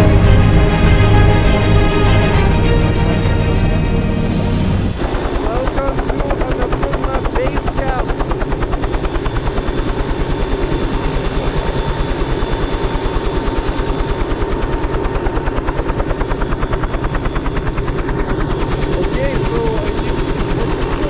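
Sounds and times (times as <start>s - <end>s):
faint turbine whine: 0.0s - 21.0s
helicopter rotor blades thumping: 0.0s - 21.0s.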